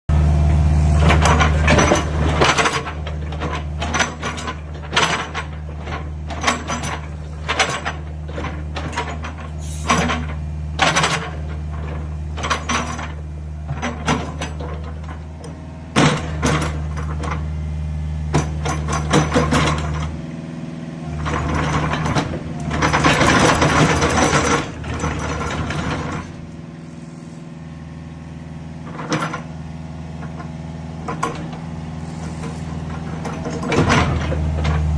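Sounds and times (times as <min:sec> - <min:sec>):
excavator diesel engine running: 0:00.1 - 0:34.9
metallic clanks and knocks: 0:01.0 - 0:17.5, 0:18.3 - 0:20.2, 0:21.1 - 0:26.6, 0:28.8 - 0:29.6, 0:30.2 - 0:34.9.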